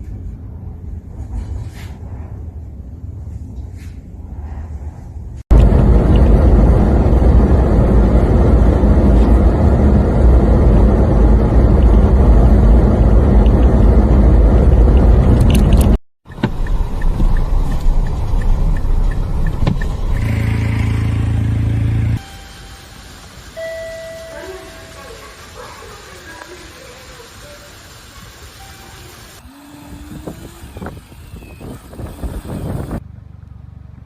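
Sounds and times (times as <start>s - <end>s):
vehicle rushing noise: 0.0s - 22.5s.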